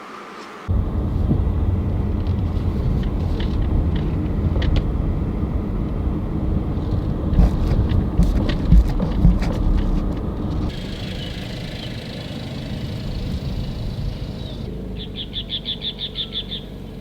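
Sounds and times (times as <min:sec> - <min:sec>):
car rumbling on the move: 0:00.7 - 0:17.0.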